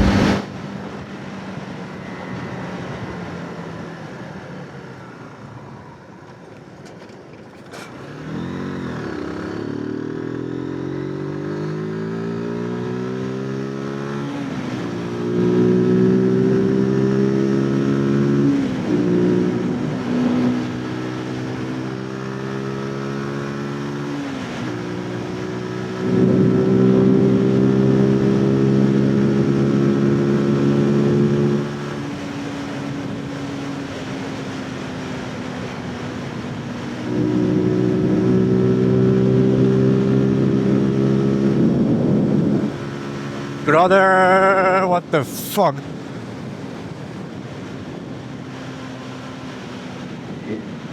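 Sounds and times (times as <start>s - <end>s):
motorcycle engine accelerating: 0.0s - 1.0s, 7.5s - 45.2s.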